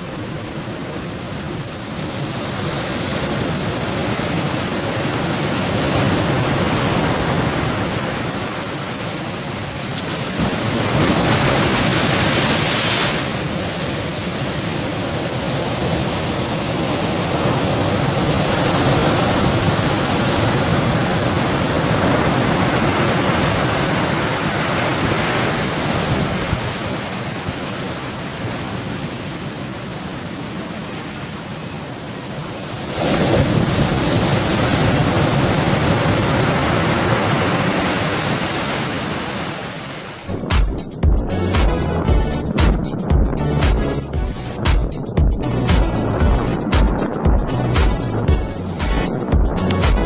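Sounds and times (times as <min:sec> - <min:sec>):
wind noise on microphone: 0:00.0 - 0:29.6, 0:40.3 - 0:50.0
sea waves breaking: 0:00.0 - 0:50.0.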